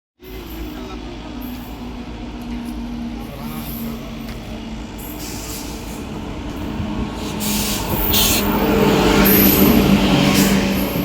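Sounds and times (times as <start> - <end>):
train carriage rumble: 0.2 - 11.0
hiss: 7.2 - 8.6.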